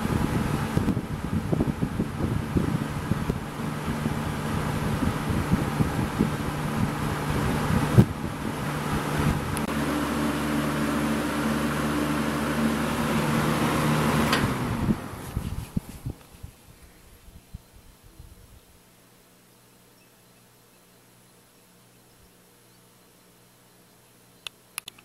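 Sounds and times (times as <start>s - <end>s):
electric fan running: 0.0s - 19.4s.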